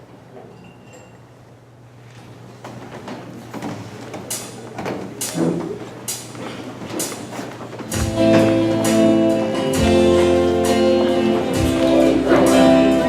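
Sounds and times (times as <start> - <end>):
strummed guitar music: 7.9 - 13.0.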